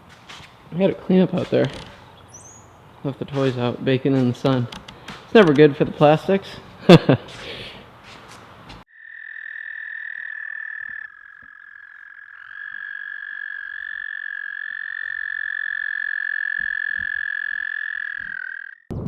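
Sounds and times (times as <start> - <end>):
frogs trilling: 0.8 - 3.6, 8.9 - 18.9.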